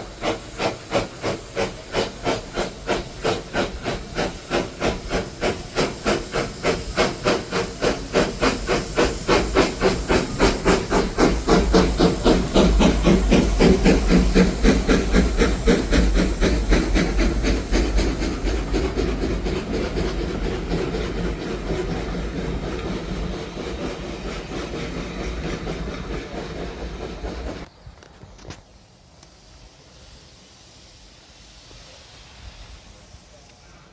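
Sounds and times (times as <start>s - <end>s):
steam hissing: 0.0s - 33.9s
steam locomotive exhaust chuffs: 0.0s - 33.9s.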